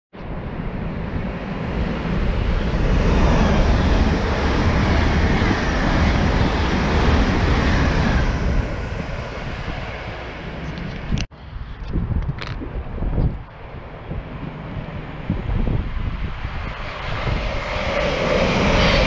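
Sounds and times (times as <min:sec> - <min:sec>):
high-speed train passing: 0:00.2 - 0:19.0.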